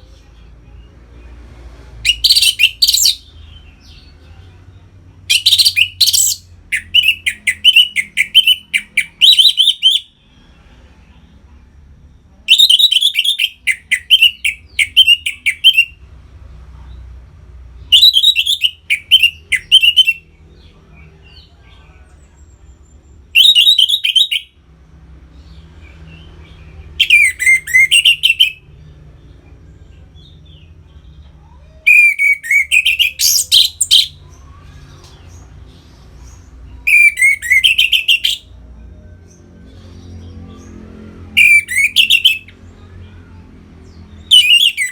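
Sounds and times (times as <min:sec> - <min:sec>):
thrush singing whistled notes: 0:02.0 - 0:03.3, 0:05.3 - 0:10.2, 0:12.5 - 0:16.0, 0:17.8 - 0:20.3, 0:23.3 - 0:24.6, 0:27.0 - 0:28.7, 0:31.9 - 0:34.2, 0:36.8 - 0:38.6, 0:41.3 - 0:42.6, 0:44.2 - 0:44.9.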